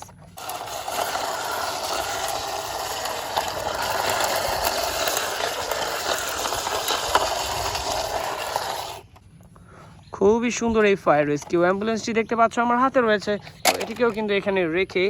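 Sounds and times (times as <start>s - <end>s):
toy clicking rattle: 0.4s - 9.0s.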